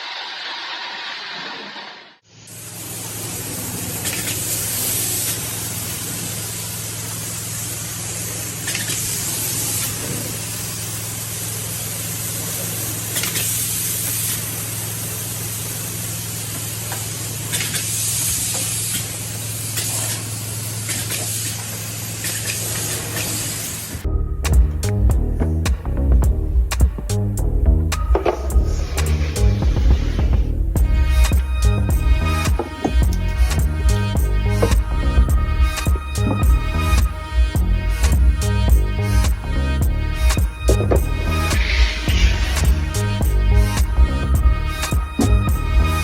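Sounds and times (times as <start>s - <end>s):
loud hiss: 0.0s - 46.0s
low hum: 24.0s - 46.0s.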